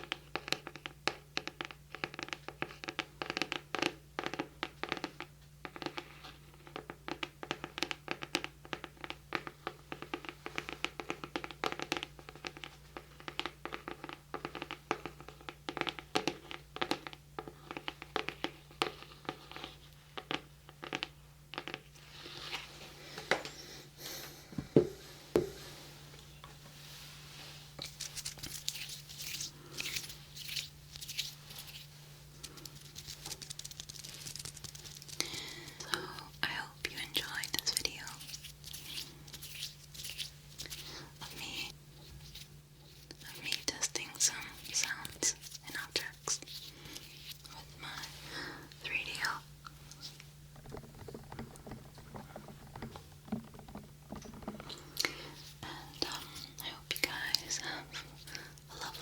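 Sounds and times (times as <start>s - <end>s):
scratching and rustling: 25.6s - 59.0s.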